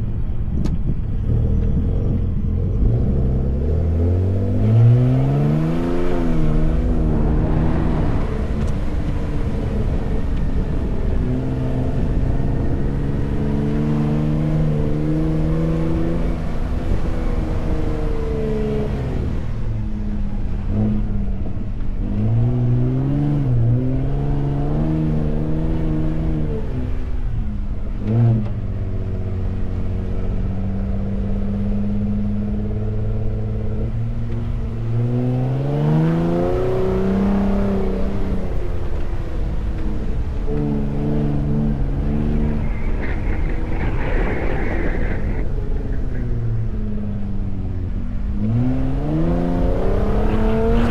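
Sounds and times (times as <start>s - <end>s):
low rumble of tyres and body: 0.0s - 50.9s
truck engine revving: 48.2s - 50.9s.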